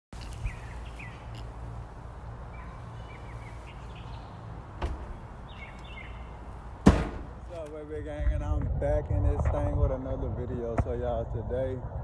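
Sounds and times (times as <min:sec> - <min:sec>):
birds chirping: 0:00.1 - 0:07.8
steady low rumble: 0:00.2 - 0:12.0
single knock: 0:06.8 - 0:07.4.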